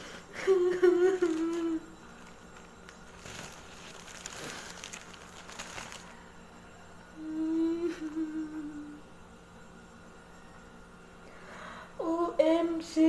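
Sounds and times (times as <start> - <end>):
woman humming: 0.0 - 2.3, 7.1 - 9.2.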